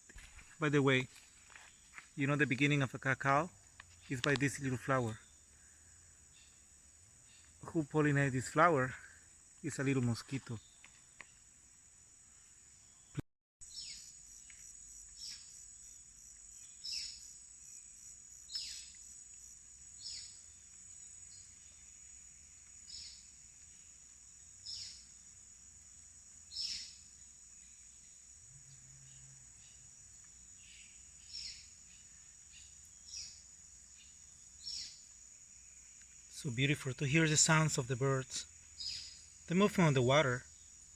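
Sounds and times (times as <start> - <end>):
insects buzzing: 0.0 - 40.9.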